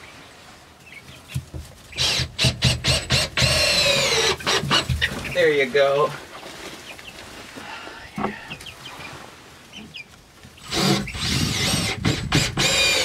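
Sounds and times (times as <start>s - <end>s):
chicks peeping: 4.2s - 5.7s.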